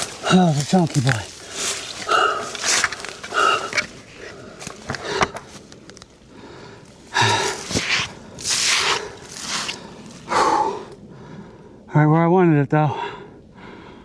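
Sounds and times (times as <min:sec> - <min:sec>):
man breathing hard: 0:01.2 - 0:05.6, 0:06.2 - 0:11.9, 0:12.9 - 0:14.0.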